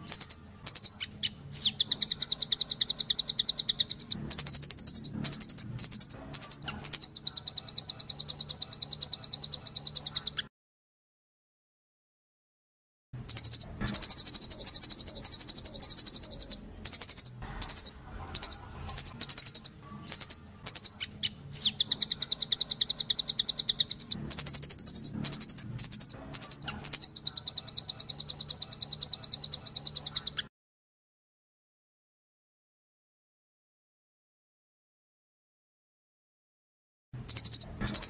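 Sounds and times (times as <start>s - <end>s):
nuthatch calling in rapid trills: 0.0s - 10.5s, 13.2s - 30.5s, 37.2s - 38.0s.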